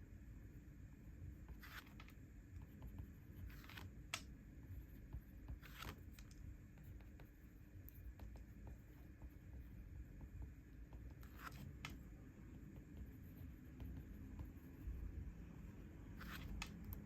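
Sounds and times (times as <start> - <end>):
paper scratching strokes: 1.5 - 4.2, 4.8 - 9.5, 11.1 - 12.0, 16.1 - 17.0.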